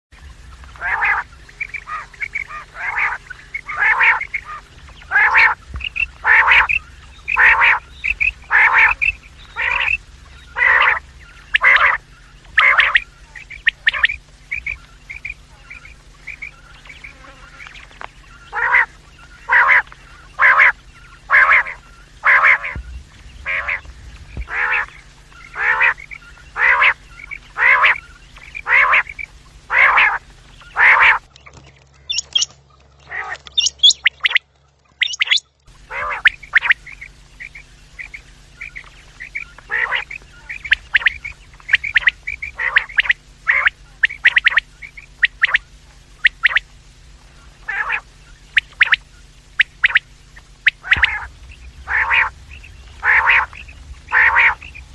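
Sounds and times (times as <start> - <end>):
steady low hum: 0.1 - 54.9
quail calling: 0.2 - 54.9
soft high chirps: 0.4 - 32.8, 33.4 - 54.9.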